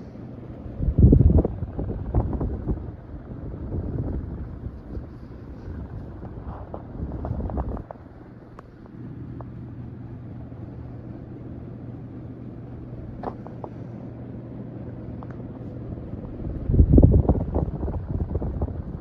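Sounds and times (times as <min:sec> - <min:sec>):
rush of air: 0:00.0 - 0:09.2
ceiling fan motor hum: 0:00.0 - 0:19.0
loud gusty rumble: 0:00.4 - 0:19.0.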